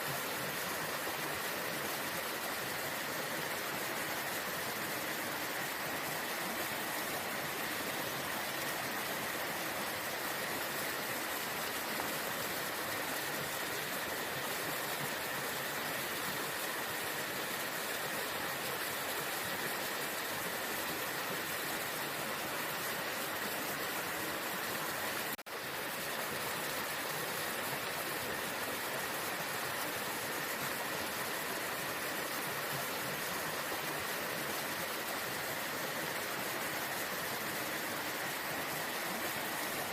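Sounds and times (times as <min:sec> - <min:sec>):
waterfall rushing: 0:00.0 - 0:16.2, 0:26.8 - 0:39.9.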